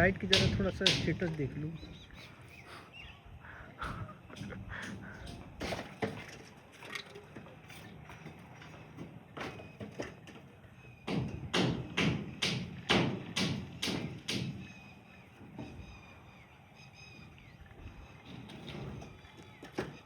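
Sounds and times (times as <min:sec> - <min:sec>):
sharp knocks: 0:00.2 - 0:01.2, 0:11.1 - 0:14.6.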